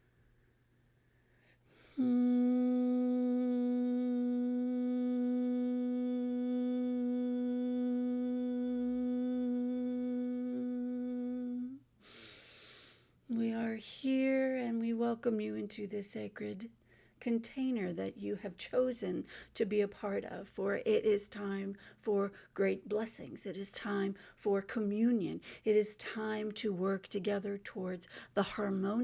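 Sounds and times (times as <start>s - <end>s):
woman humming long note: 2.0s - 11.8s
quick breath in: 12.0s - 13.2s.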